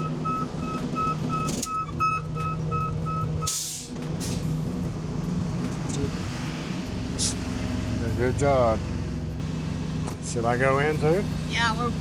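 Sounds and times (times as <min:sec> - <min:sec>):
truck reversing beeper: 0:00.0 - 0:04.0
diesel engine idling: 0:00.0 - 0:12.0
air brake hiss: 0:03.5 - 0:04.4.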